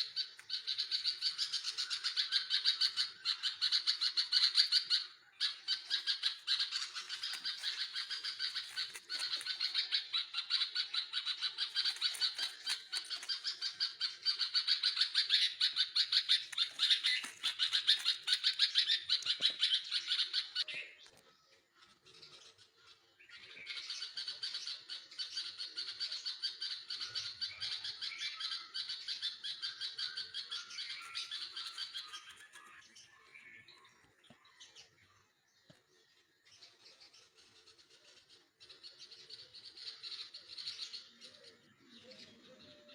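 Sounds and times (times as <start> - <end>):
nestlings chirping: 0.0 - 20.7, 30.4 - 32.8.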